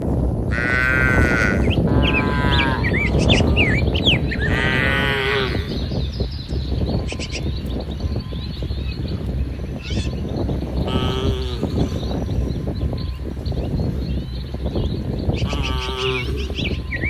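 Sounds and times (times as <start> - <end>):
birds chirping: 0.0 - 17.0
cattle mooing: 0.5 - 6.0, 10.8 - 12.2, 15.4 - 17.0.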